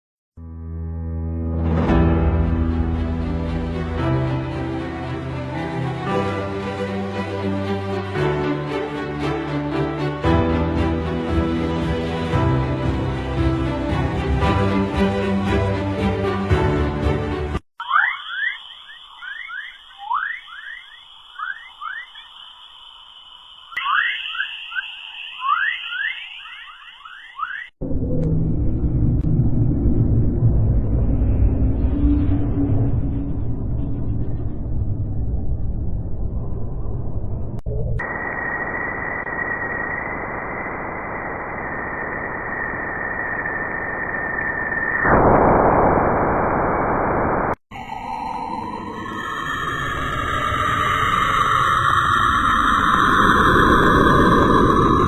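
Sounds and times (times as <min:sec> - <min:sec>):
radio static hiss: 0:17.8 - 0:27.7, 0:38.0 - 0:47.6
thin high tone: 0:17.8 - 0:27.7
short rising chirps: 0:17.8 - 0:27.8
steady high whistling tone: 0:17.8 - 0:28.8, 0:30.2 - 0:46.7, 0:47.7 - 0:55.0
gliding wavering tones: 0:47.7 - 0:55.0.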